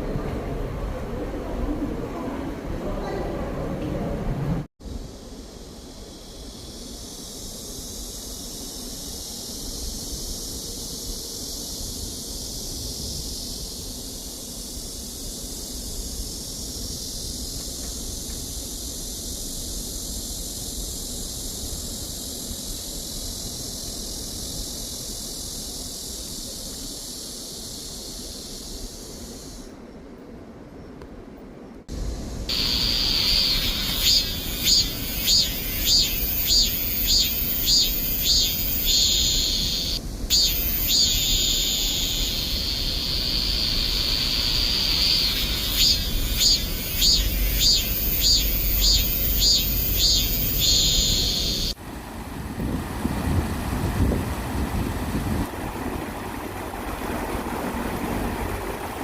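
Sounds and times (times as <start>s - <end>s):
cicadas buzzing: 4.8s - 30.9s, 31.9s - 52.0s.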